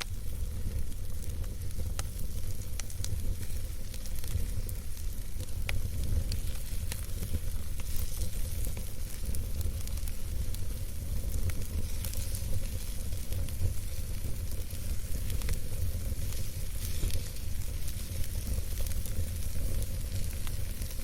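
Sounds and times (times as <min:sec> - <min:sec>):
campfire crackling: 0:00.0 - 0:21.0
fire popping: 0:00.0 - 0:21.0.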